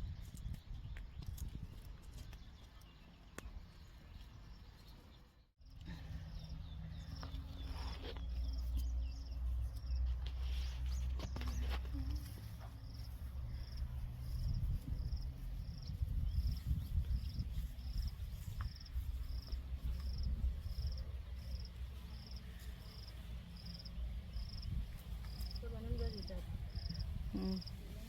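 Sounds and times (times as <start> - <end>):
cricket chirping: 11.5 - 16.6, 17.2 - 25.7, 26.7 - 27.8.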